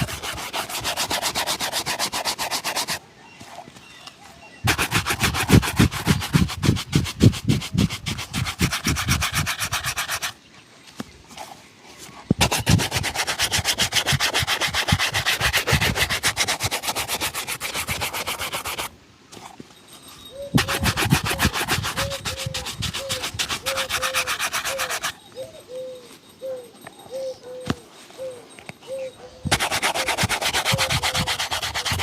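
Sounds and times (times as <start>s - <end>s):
shoe buffing strokes: 0.0s - 3.8s, 4.6s - 10.4s, 12.3s - 18.9s, 20.5s - 25.2s, 29.5s - 32.0s.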